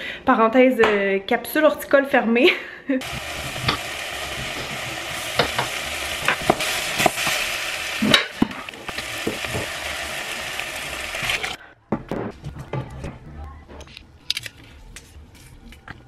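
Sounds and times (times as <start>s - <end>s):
food sizzling in pot: 3.0s - 11.6s.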